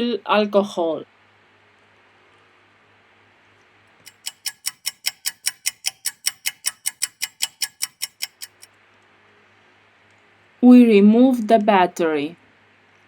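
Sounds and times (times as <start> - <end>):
rapid clock-like ticking: 4.0 - 8.7.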